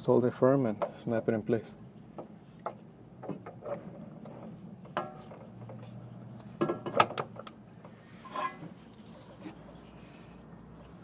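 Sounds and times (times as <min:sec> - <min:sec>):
metal clicks and knocks: 0:06.6 - 0:07.6.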